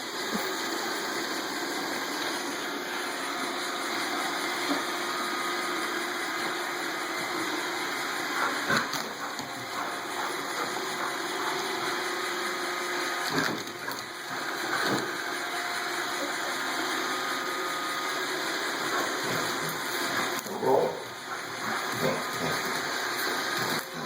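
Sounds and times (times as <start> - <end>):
robot vacuum running: 0.0 - 24.0.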